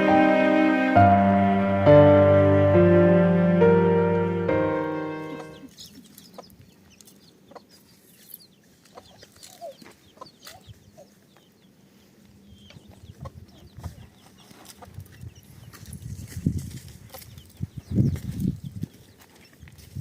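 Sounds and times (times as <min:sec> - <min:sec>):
chickens clucking: 0:05.2 - 0:11.8, 0:12.4 - 0:15.9.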